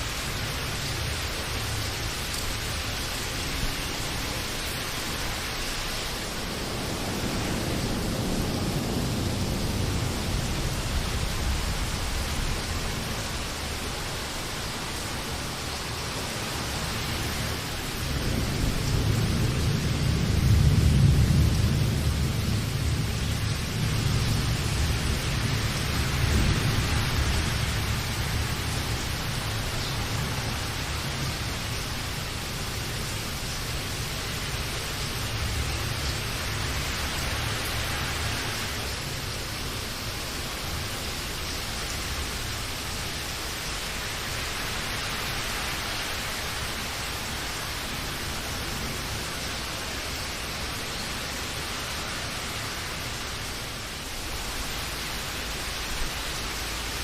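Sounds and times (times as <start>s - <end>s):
heavy rain falling: 0.0s - 57.0s
thunder rumbling: 6.2s - 14.5s, 17.6s - 38.5s.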